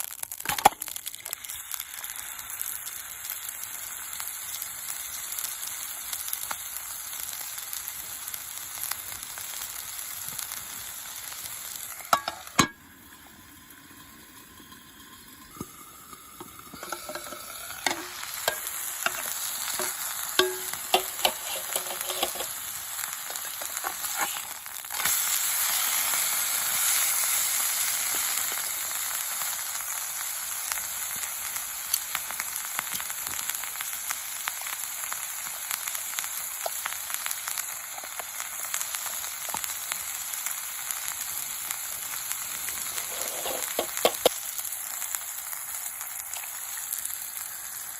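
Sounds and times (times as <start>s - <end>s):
steak sizzling in a frying pan: 0.0s - 47.9s
popping fat: 15.5s - 25.8s, 42.0s - 47.4s.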